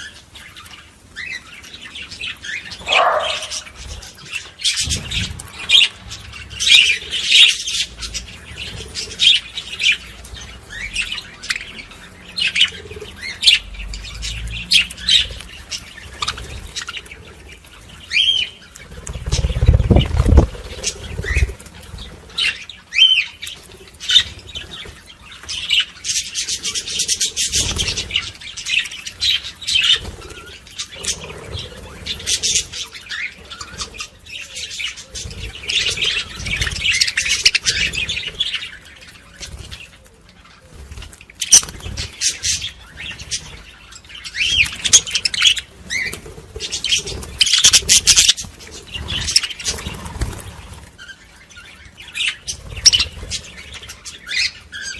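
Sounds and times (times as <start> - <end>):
budgerigars chattering and warbling: 0.0 - 54.9.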